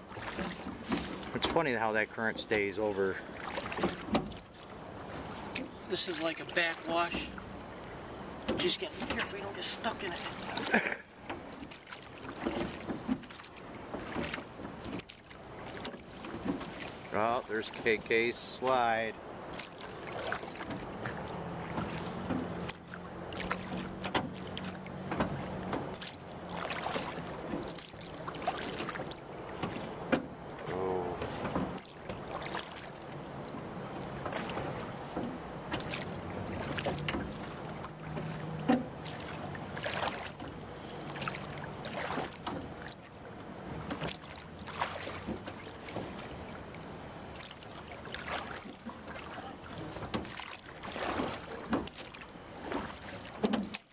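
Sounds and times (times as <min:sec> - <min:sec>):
water splashing against hull: 0:00.0 - 0:53.9
knocks and clunks: 0:00.3 - 0:02.7, 0:08.4 - 0:09.6, 0:23.5 - 0:24.4, 0:25.0 - 0:26.1, 0:38.1 - 0:39.0.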